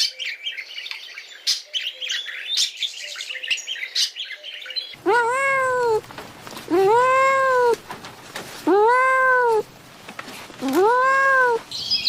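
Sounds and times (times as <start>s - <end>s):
small birds chirping: 0.0s - 8.0s, 10.6s - 12.0s
cat meowing: 5.0s - 6.0s, 6.7s - 7.8s, 8.6s - 9.7s, 10.6s - 11.6s.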